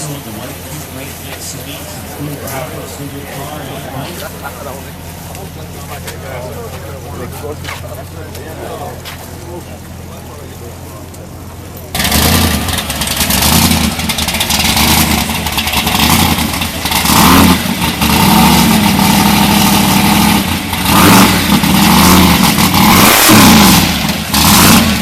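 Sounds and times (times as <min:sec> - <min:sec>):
engine running and revving: 0:10.6 - 0:25.0.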